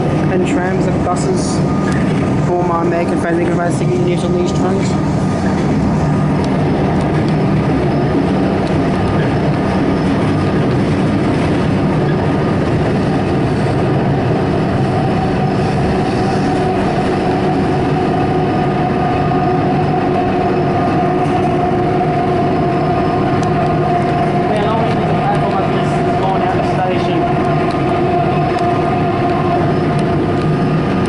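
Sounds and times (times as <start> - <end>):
electric train rumble: 0.0 - 31.0
steady whine: 0.0 - 31.0.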